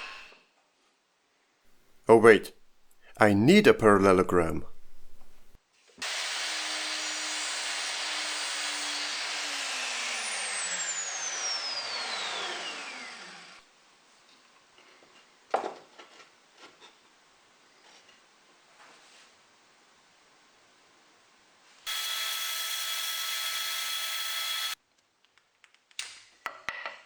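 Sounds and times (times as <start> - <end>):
power saw cutting plywood: 6.0 - 13.6, 21.9 - 24.8.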